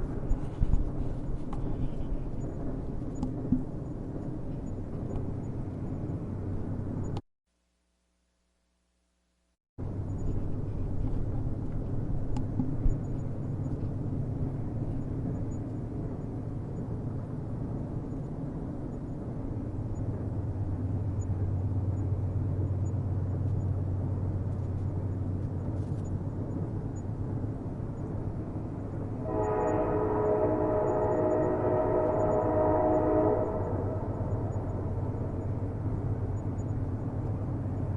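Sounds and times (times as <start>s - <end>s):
train rumbling: 0.0s - 7.2s, 9.8s - 37.9s
train horn blowing: 29.2s - 35.0s.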